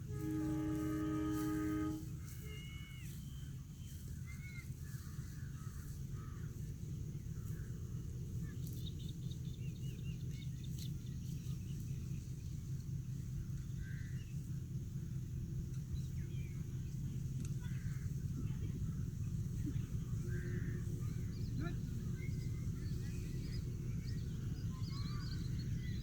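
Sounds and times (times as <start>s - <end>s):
steady low rumble: 0.0s - 26.0s
birds chirping and calling: 17.6s - 26.0s.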